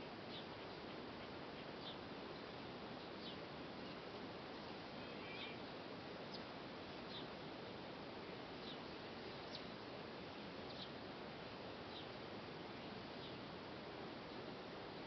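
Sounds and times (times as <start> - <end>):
outdoor background hiss: 0.0 - 15.0
small bird chirping: 1.6 - 2.0, 3.2 - 4.0, 4.9 - 5.6, 8.6 - 9.8, 10.6 - 11.0.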